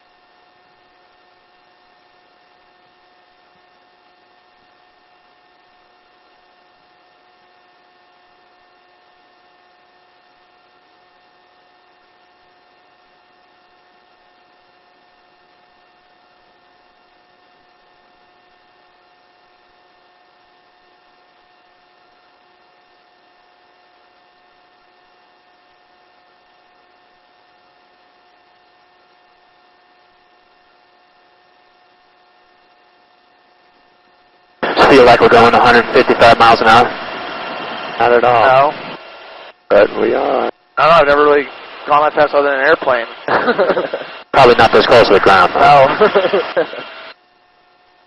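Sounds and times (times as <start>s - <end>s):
helicopter drone through headset: 34.6s - 47.2s.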